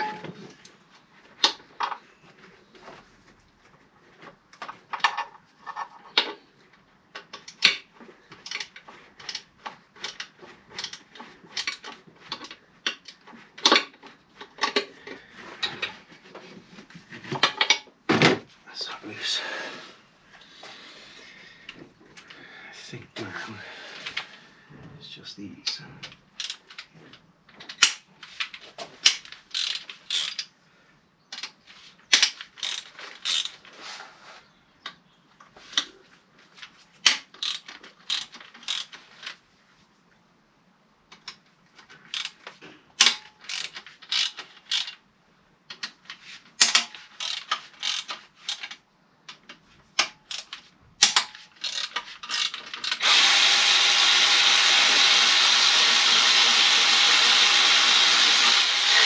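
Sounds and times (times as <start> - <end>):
ratchet wrench clicking: 26.4 - 26.6, 29.5 - 30.5, 32.6 - 33.6, 37.4 - 39.0, 42.1 - 42.4, 43.4 - 45.0, 46.7 - 48.7, 50.2 - 50.5, 51.1 - 59.0.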